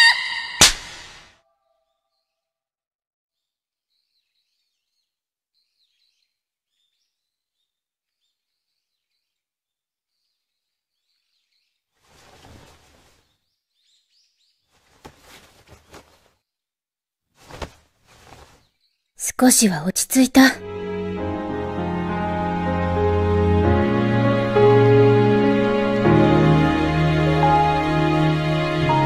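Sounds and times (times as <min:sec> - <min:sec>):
faint birds chirping: 0:03.4 - 0:16.7.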